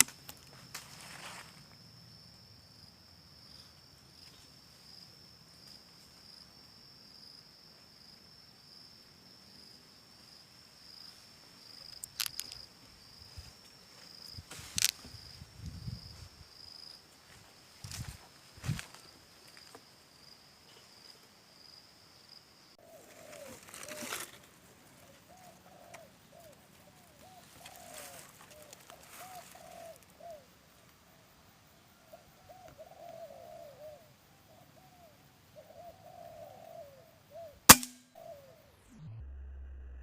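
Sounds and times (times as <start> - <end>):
doves cooing: 22.8 - 24.4, 25.0 - 30.5, 32.1 - 37.6
air rifle shot: 37.7 - 38.1.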